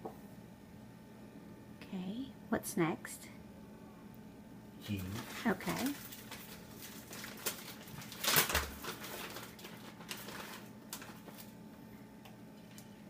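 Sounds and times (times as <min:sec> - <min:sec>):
cheese rustling onto taco shells: 0:05.1 - 0:11.6.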